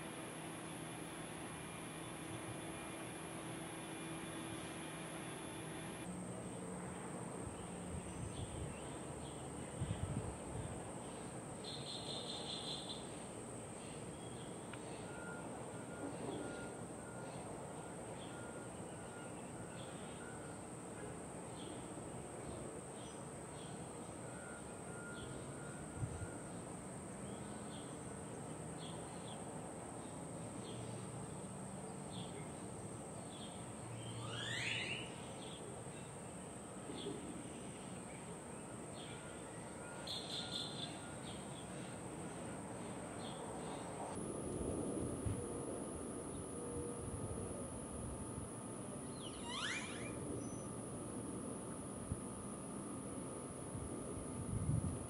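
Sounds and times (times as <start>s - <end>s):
outdoor background hiss: 0.0s - 55.0s
rising bird call: 34.2s - 35.2s, 49.0s - 50.9s.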